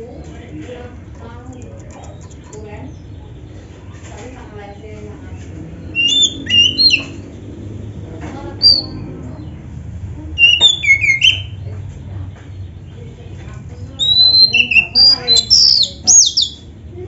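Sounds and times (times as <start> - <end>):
bird singing whistled notes: 5.9 - 7.2, 8.6 - 9.0, 10.4 - 11.6, 14.0 - 16.6.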